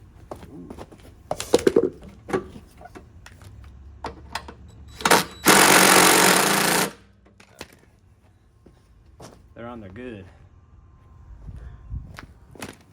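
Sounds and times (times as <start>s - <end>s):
power tool running: 5.0s - 7.0s.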